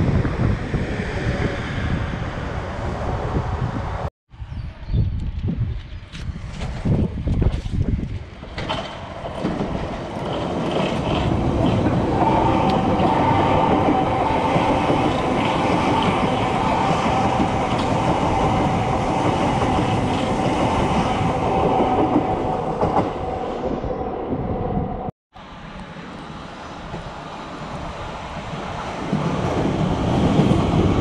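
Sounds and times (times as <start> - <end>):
train wheels clattering over rail joints: 8.0 - 16.6
electric train whine: 8.3 - 31.0.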